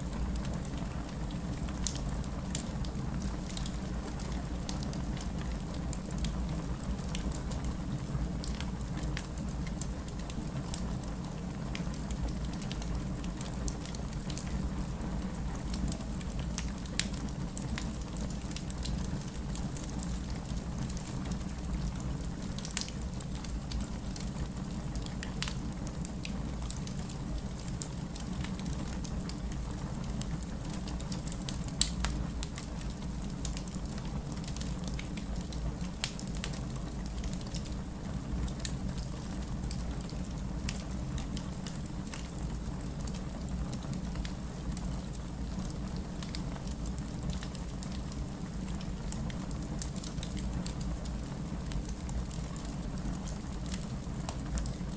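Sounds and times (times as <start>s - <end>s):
flames rumbling: 0.1s - 54.9s
wood fire pops and snaps: 48.8s - 51.1s.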